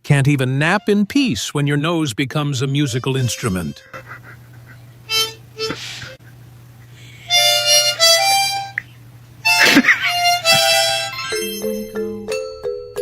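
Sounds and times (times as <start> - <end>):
dog sniffing: 3.9 - 7.7.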